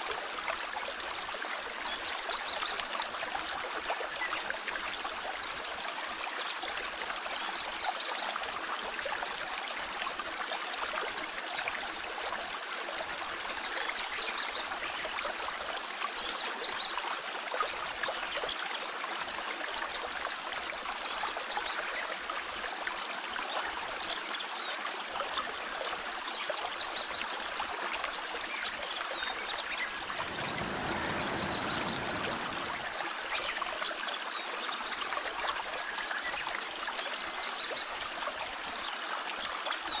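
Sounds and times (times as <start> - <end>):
stream flowing over rocks: 30.1 - 33.0.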